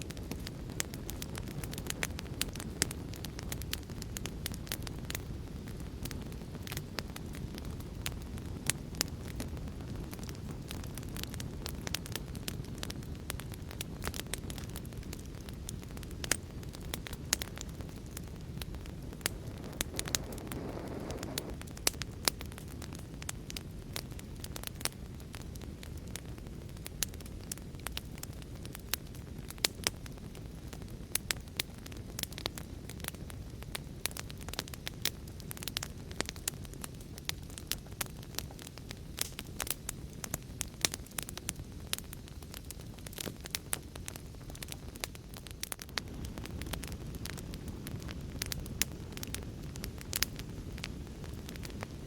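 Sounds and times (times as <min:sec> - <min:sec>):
fire crackles and pops: 0:00.0 - 0:52.0
wood fire rumbling: 0:00.0 - 0:52.0
flame whoosh: 0:00.2 - 0:26.5.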